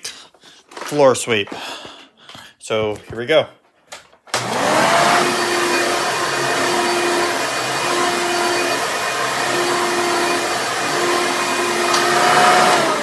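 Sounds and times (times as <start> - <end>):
vacuum cleaner running: 4.3 - 13.0.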